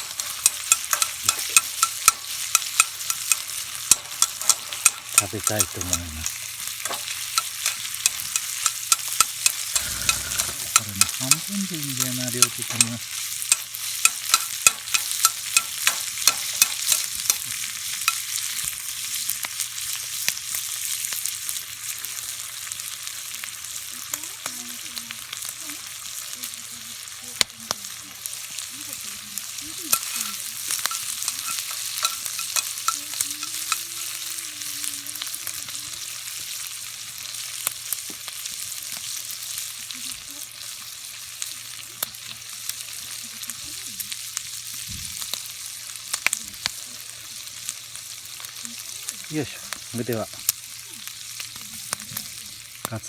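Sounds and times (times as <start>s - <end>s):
meat sizzling in a skillet: 0.0s - 53.0s.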